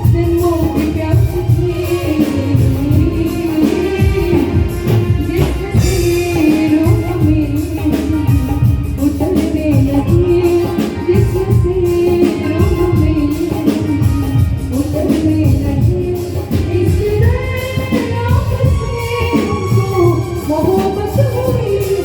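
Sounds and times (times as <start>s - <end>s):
drum beats: 0.0s - 22.0s
live band playing: 0.0s - 22.0s.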